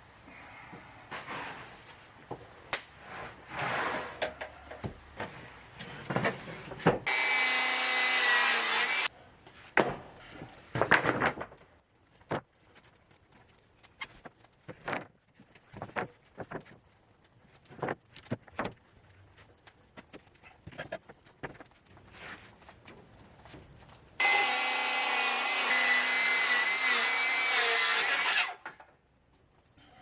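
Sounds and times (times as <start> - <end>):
wooden boards knocking and scraping: 3.2 - 7.1, 9.7 - 11.6, 14.7 - 16.8
power saw cutting: 7.1 - 9.1, 24.2 - 28.6.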